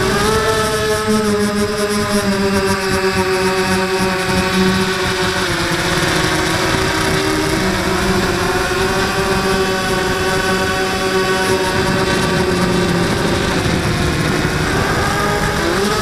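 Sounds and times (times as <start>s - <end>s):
quadcopter propellers whining: 0.0s - 16.0s.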